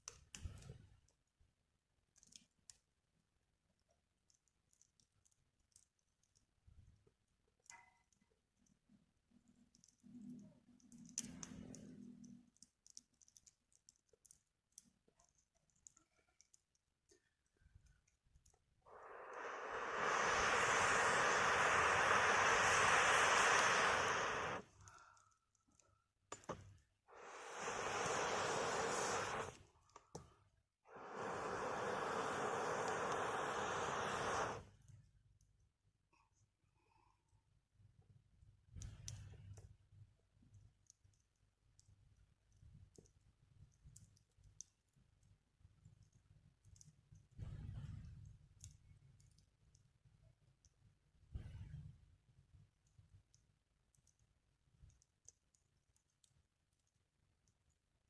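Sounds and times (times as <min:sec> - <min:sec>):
fire crackling and clicking: 0:09.5 - 0:16.8, 0:17.8 - 0:30.3, 0:30.9 - 0:35.0
low fire rumble: 0:18.9 - 0:24.6, 0:27.1 - 0:29.6, 0:30.9 - 0:34.6
air whooshing through pipe: 0:18.9 - 0:24.7, 0:27.1 - 0:29.6, 0:30.9 - 0:34.7.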